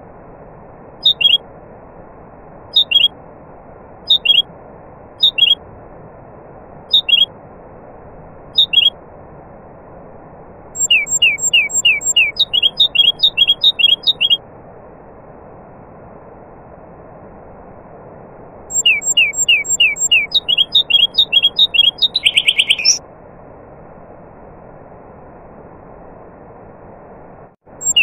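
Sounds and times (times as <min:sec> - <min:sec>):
songbird singing: 0:01.0 - 0:01.4, 0:02.7 - 0:03.1, 0:04.1 - 0:04.5, 0:05.2 - 0:05.6, 0:06.9 - 0:07.3, 0:08.5 - 0:09.0, 0:10.8 - 0:14.4, 0:18.7 - 0:23.0, 0:27.7 - 0:28.0.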